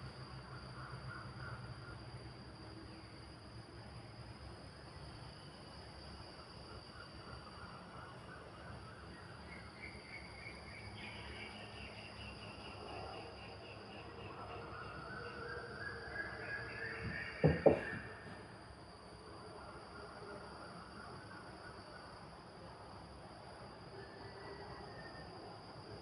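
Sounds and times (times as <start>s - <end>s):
high insect drone: 0.0s - 26.0s
sharp knocks: 17.0s - 18.4s.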